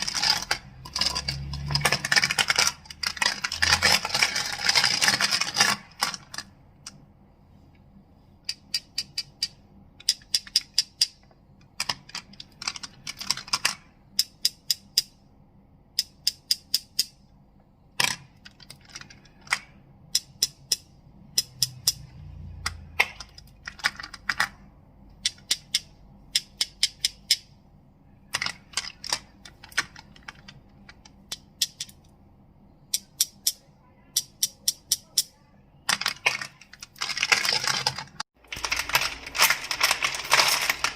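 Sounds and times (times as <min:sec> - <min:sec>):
crystals clicking and clacking: 0:00.0 - 0:07.0, 0:32.9 - 0:40.9.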